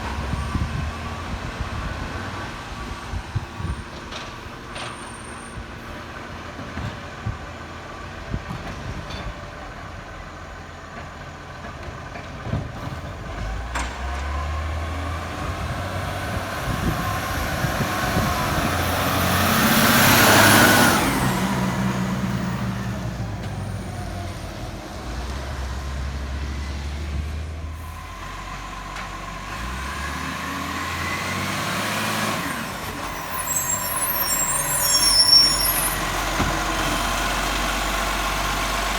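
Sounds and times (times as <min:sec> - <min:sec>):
diesel truck engine revving: 0:12.4 - 0:38.9.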